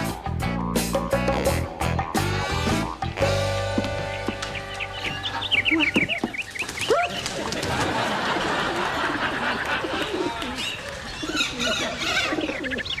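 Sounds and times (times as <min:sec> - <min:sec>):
held music chord: 0:00.0 - 0:06.0
birds chirping: 0:02.1 - 0:13.0.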